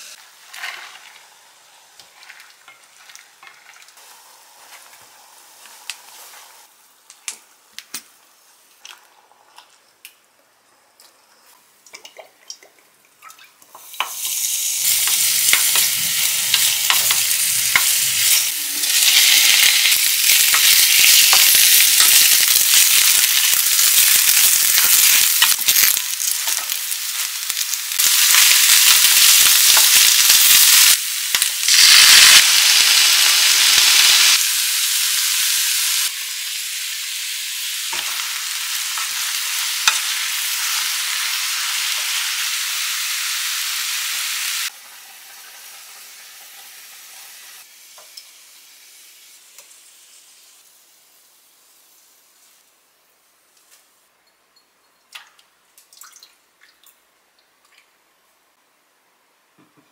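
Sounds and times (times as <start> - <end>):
loud sizzling in frying pan: 0.0 - 6.7, 13.7 - 52.7.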